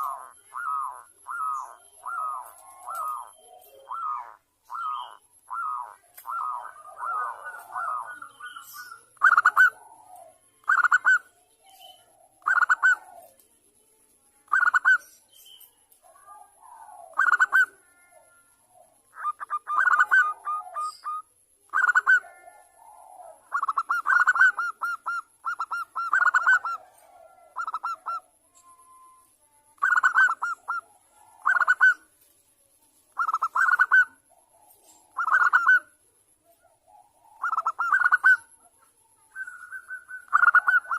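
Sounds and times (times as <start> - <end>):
dove trilled cooing: 0.0 - 13.4, 14.5 - 15.1, 16.0 - 29.2, 29.8 - 32.1, 33.1 - 40.9.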